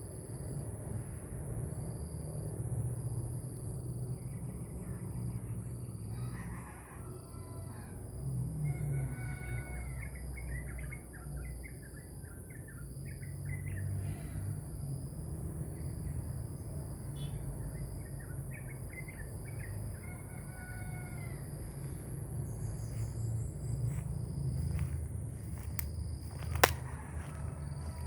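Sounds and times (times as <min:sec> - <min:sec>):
steady low hum: 0:21.1 - 0:28.0.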